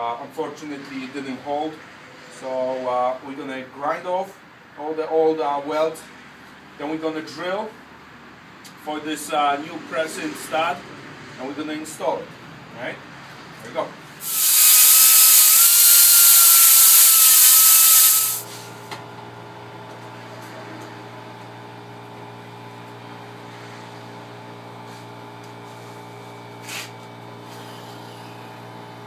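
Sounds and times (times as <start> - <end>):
power tool hissing and whining: 14.2 - 18.6.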